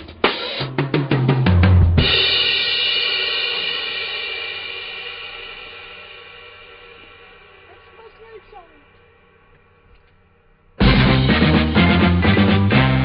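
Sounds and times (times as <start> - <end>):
drum fill: 0.0 - 9.7, 10.8 - 13.0
cymbal crash ringing: 2.0 - 11.8.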